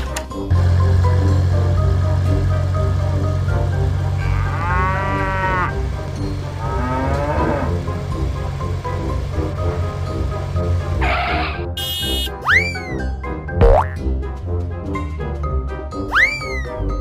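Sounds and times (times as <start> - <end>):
background music: 0.0 - 17.0
cow mooing: 4.0 - 6.0, 6.6 - 8.0.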